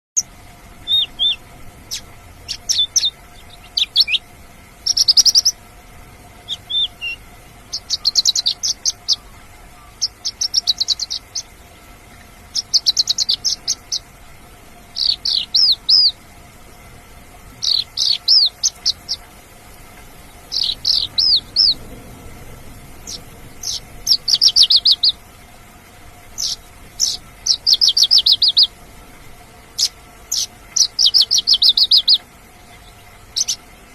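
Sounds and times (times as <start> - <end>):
bird chirping rapidly: 0.2 - 5.6, 6.3 - 11.6, 12.4 - 14.2, 14.9 - 16.2, 17.5 - 25.2, 26.2 - 28.8, 29.7 - 33.7.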